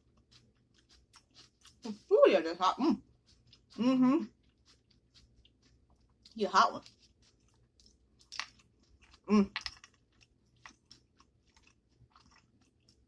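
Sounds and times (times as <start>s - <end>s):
chewing crunchy pepper: 0.0s - 13.0s.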